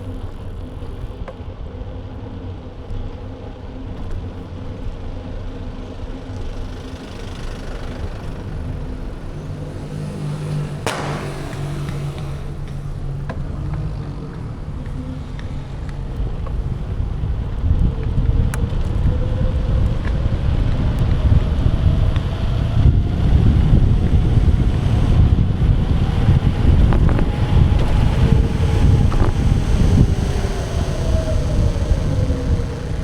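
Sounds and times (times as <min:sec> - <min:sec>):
motor vehicle hum: 0:00.0 - 0:33.0
road noise: 0:00.0 - 0:33.0
wind rumbling on microphone: 0:07.6 - 0:33.0
sharp knock: 0:10.9 - 0:12.8.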